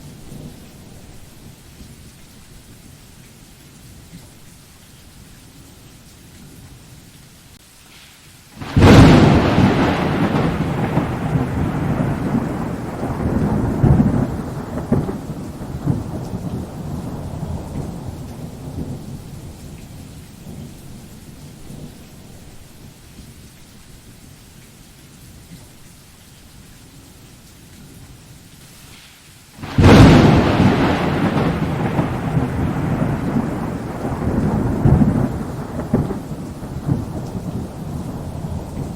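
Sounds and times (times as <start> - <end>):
steady rain hissing: 0.0 - 38.9
thunder crack and rumble: 8.6 - 22.0, 29.6 - 38.9.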